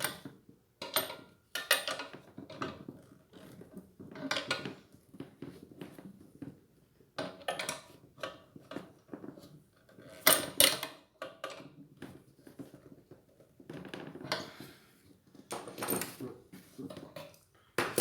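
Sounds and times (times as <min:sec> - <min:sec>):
clinks and knocks of tools: 0:15.5 - 0:16.2.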